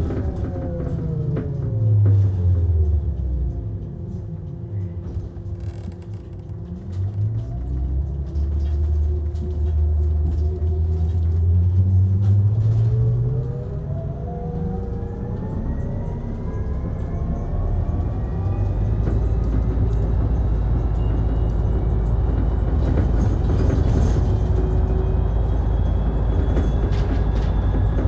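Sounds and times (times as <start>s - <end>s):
bus drive whine: 0.0s - 28.0s.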